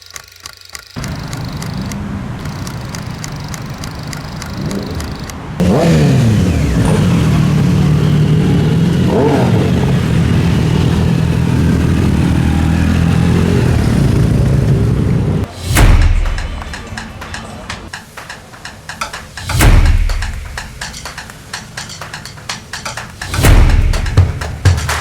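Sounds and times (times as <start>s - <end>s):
motorcycle engine revving: 1.0s - 15.5s.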